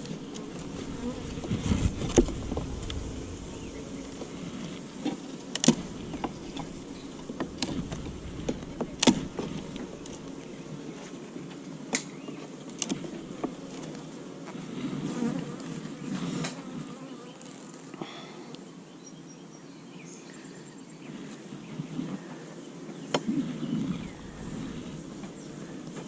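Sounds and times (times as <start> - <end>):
honeybees buzzing: 0.0 - 17.9, 23.5 - 26.0.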